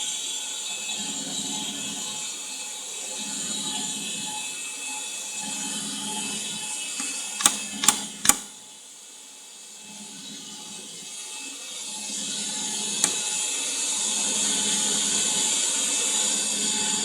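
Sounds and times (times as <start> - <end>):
sharp clacks: 7.0 - 8.5
threading machine running: 7.0 - 8.5.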